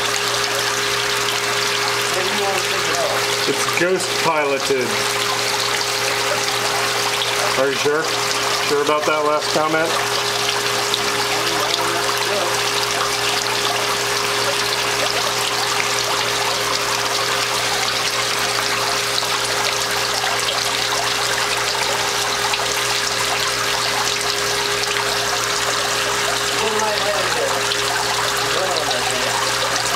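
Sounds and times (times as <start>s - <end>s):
water splashing into basin: 0.0s - 29.9s.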